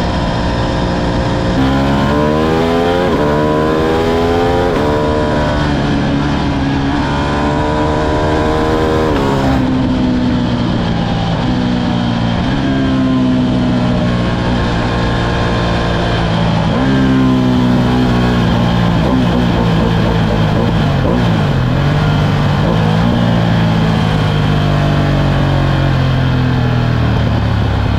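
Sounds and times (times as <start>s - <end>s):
motorcycle engine accelerating: 0.0s - 27.9s.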